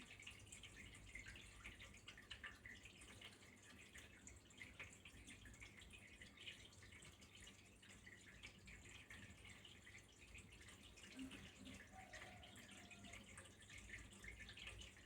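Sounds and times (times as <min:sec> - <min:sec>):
small stream trickling: 0:00.0 - 0:15.0.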